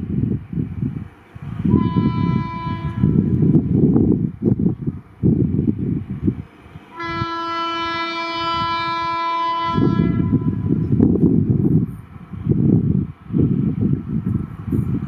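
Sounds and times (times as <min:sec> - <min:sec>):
train rumbling: 0:00.0 - 0:15.0
train horn blast: 0:01.7 - 0:03.5, 0:06.9 - 0:10.9.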